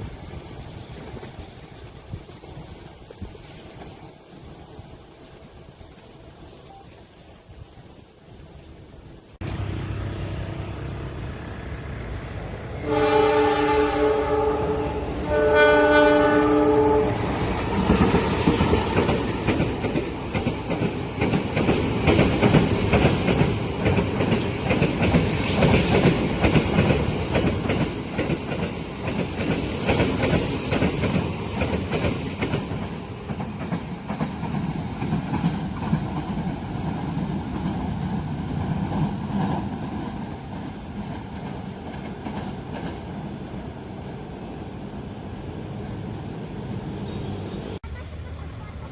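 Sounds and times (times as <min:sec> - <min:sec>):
train wheels clacking over rails: 0:00.0 - 0:08.2, 0:09.4 - 0:43.7
train horn chord: 0:12.8 - 0:17.2.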